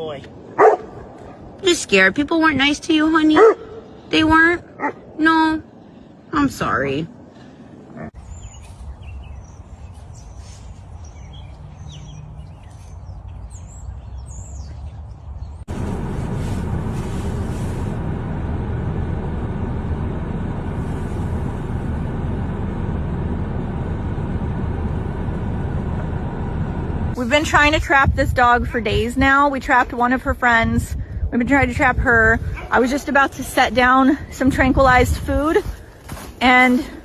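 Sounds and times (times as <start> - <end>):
low background rumble: 0.0 - 37.0
small birds chirping: 8.0 - 15.7
loud steady rumbling: 15.7 - 35.8.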